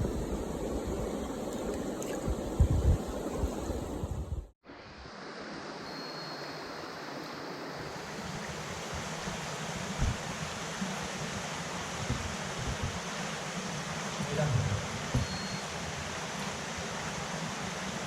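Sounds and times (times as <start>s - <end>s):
wind buffeting microphone: 0.0s - 4.5s
mountain stream rushing: 0.0s - 18.0s.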